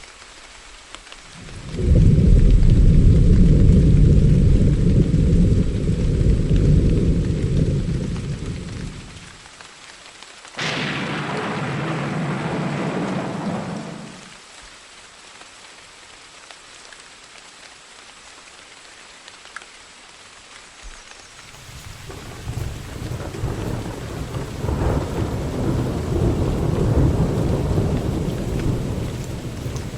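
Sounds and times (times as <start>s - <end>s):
steady rain: 0.0s - 29.9s
thunder rumbling: 1.3s - 9.4s, 10.6s - 14.4s, 21.5s - 29.9s
sharp thunderclap: 1.4s - 9.3s, 10.6s - 14.3s, 21.6s - 29.9s.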